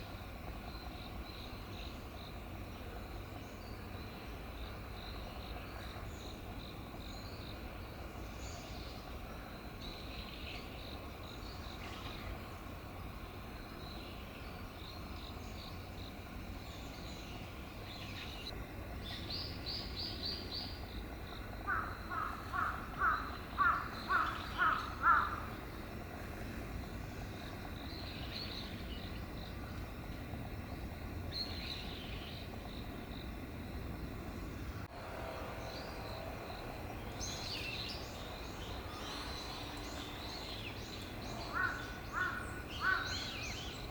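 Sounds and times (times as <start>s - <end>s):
loud evenly spaced bird calls: 0.0s - 33.4s, 34.2s - 43.9s
wild birds calling: 16.6s - 32.8s, 37.0s - 43.9s.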